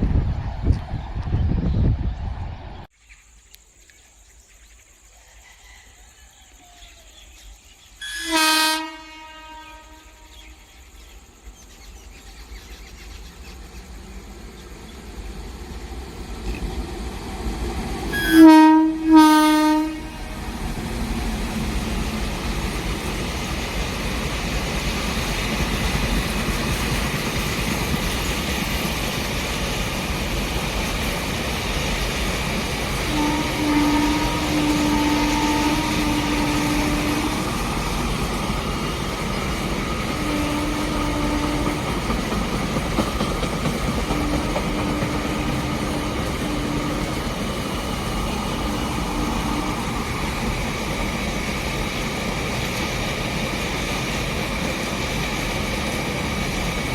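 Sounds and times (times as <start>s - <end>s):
train rolling rumble: 0.0s - 3.0s, 8.3s - 56.9s
train horn blasts: 8.0s - 10.6s, 18.1s - 20.6s, 33.0s - 37.8s, 40.1s - 42.1s, 44.0s - 47.4s, 48.5s - 50.2s.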